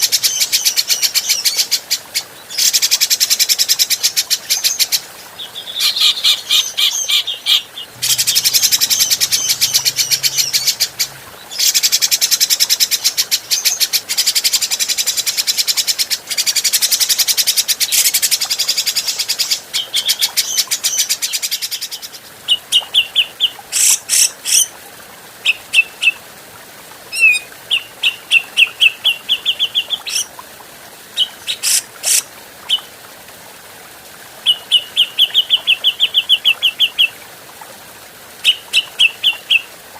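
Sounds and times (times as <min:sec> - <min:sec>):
bulbul rapid chattering calls: 0:05.8 - 0:13.8.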